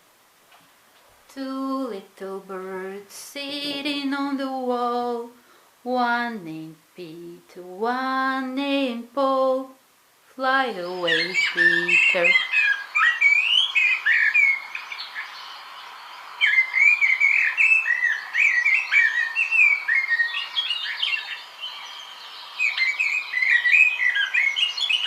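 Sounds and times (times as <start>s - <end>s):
small birds chirping: 10.4s - 25.0s.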